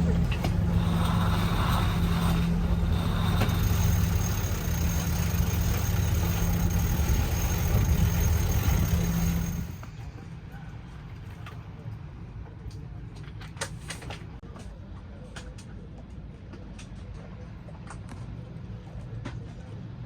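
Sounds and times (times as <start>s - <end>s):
boat engine running: 0.0s - 9.8s.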